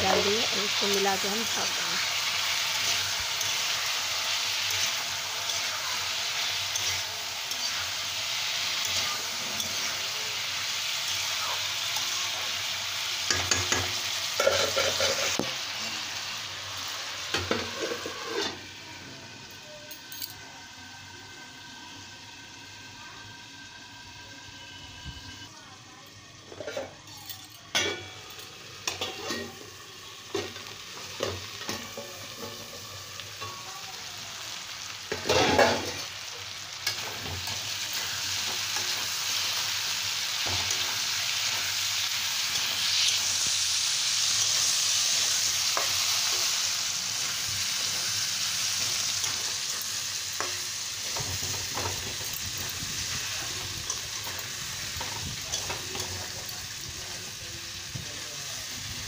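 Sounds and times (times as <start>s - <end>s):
food sizzling in oil: 0.0s - 59.0s
stirring in a pan: 13.2s - 15.6s, 17.3s - 18.6s, 28.8s - 33.7s.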